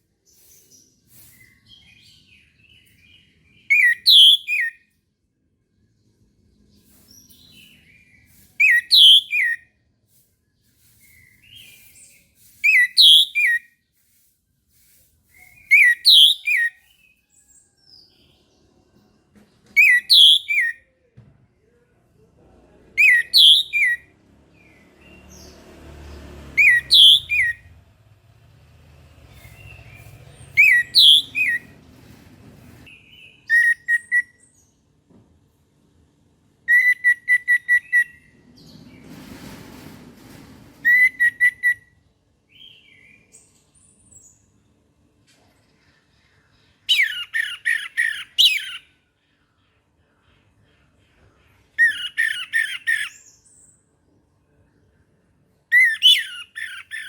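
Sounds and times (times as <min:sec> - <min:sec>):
brief rushing hiss: 0:00.2 - 0:02.3, 0:06.7 - 0:16.7, 0:23.1 - 0:32.9.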